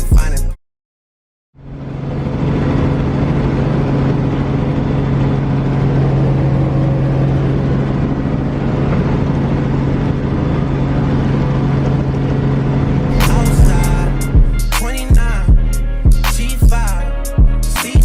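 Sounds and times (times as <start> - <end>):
low engine hum: 1.6 - 16.8
even rushing noise: 13.1 - 16.1.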